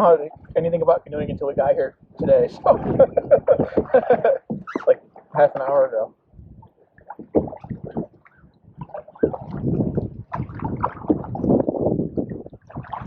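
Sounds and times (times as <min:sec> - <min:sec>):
wind buffeting microphone: 0:00.0 - 0:13.0
paddle splashing in water: 0:02.6 - 0:13.0.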